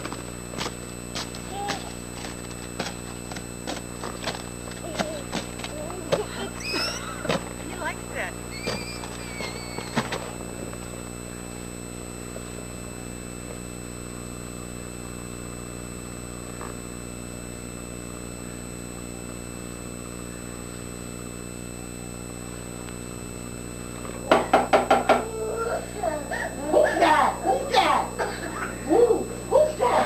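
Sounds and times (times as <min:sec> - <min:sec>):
electrical hum: 0:00.0 - 0:30.0.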